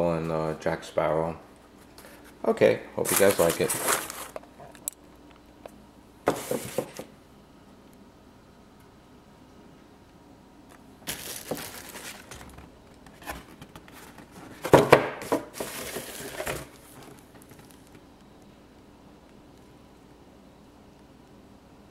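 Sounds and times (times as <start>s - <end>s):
paper and packaging rustling: 3.0s - 4.4s, 6.3s - 7.1s, 11.0s - 17.9s.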